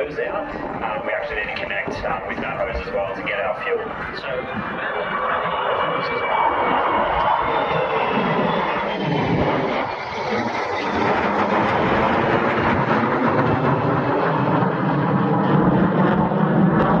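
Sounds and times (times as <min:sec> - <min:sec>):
turboprop engines droning: 0:00.0 - 0:17.0.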